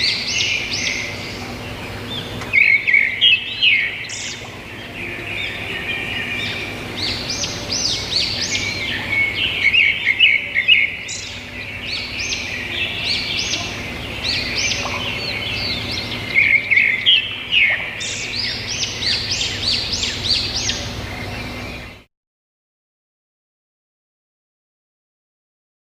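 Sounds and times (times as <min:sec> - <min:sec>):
birds chirping: 0:00.0 - 0:22.1
faint low hum: 0:00.0 - 0:22.1.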